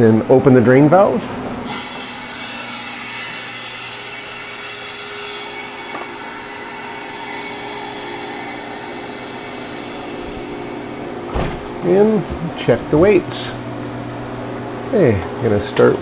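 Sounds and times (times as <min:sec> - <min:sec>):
machinery humming: 0:01.4 - 0:16.0
air hissing through valve: 0:01.7 - 0:11.8.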